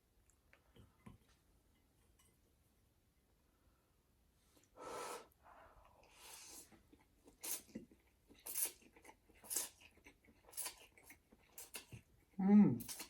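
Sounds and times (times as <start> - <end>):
person breathing while eating: 4.5 - 6.8.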